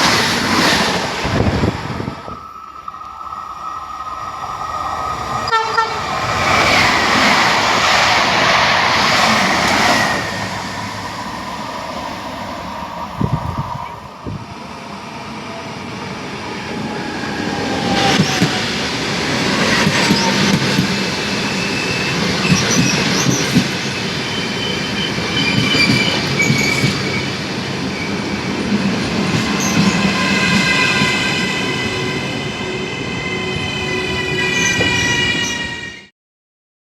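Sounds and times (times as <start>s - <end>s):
train cars rumbling: 3.5s - 35.8s
train wheels squealing: 19.6s - 28.4s, 29.4s - 36.1s.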